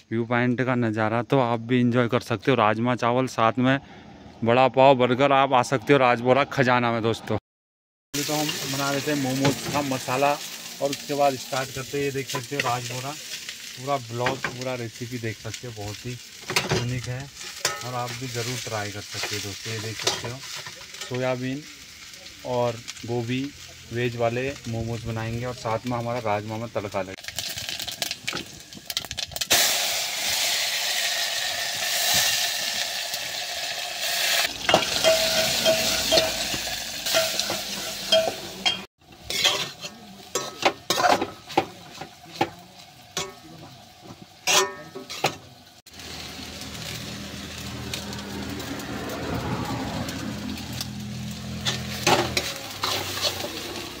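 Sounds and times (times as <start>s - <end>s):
hot oil sizzling: 8.2s - 54.0s
metal ladle scraping and knocking: 34.6s - 42.5s, 44.5s - 45.4s.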